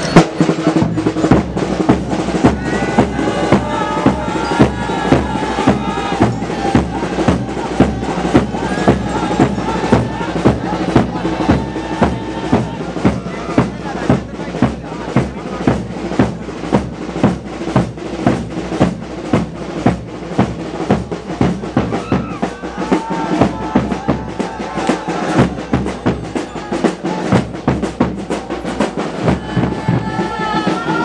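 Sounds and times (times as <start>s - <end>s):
wind instrument melody: 0.0s - 15.2s, 20.7s - 31.0s
loud drum strikes: 0.0s - 31.0s.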